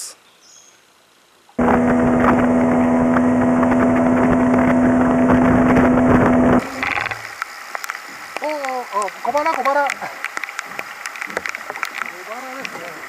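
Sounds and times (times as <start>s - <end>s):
outboard motor running: 1.6s - 7.4s.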